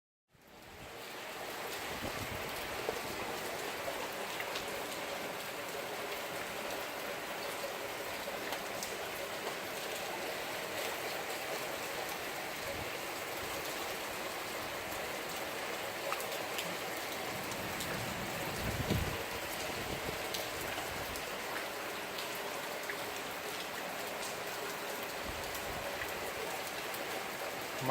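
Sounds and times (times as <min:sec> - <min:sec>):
raindrops pattering on surfaces: 0:00.3 - 0:27.9
heavy rain pouring: 0:00.4 - 0:27.9.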